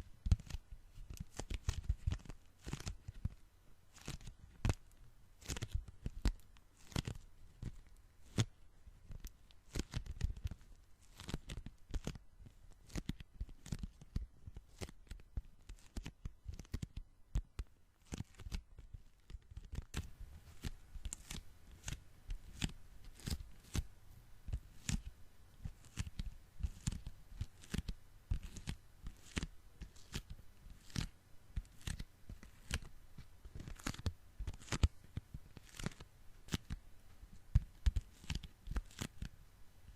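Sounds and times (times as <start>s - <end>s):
sticky fingers peeling apart: 5.4s - 8.5s, 9.2s - 12.2s, 12.8s - 23.9s, 24.7s - 34.9s, 35.5s - 36.8s, 37.6s - 39.3s.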